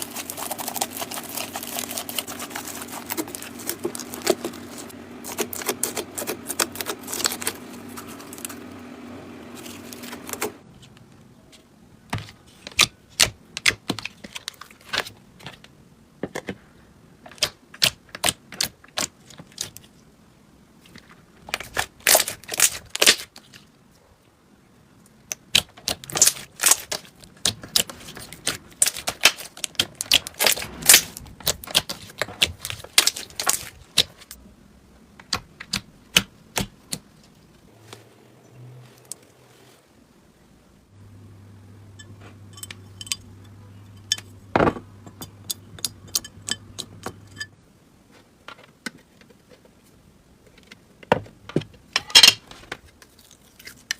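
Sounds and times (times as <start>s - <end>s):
steady low hum: 0.0s - 13.5s, 26.4s - 48.5s.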